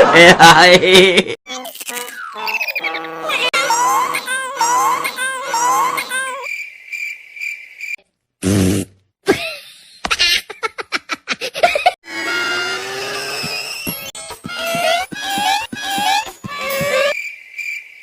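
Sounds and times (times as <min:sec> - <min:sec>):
rising cartoon chirps: 0:01.9 - 0:06.6
held high tone: 0:02.1 - 0:06.4.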